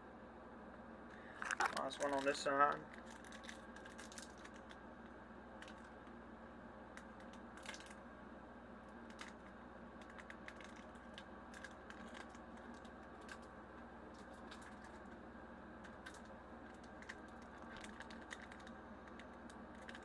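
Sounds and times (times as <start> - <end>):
steady low hum: 0.0 - 20.0
foil pack crinkling: 1.2 - 4.8, 5.6 - 6.0, 7.0 - 8.0, 9.1 - 13.5, 14.1 - 15.2, 15.8 - 20.0.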